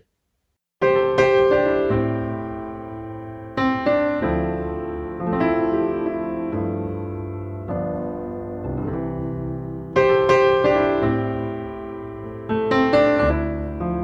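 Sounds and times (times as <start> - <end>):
piano playing sustained chords: 0.8 - 14.0.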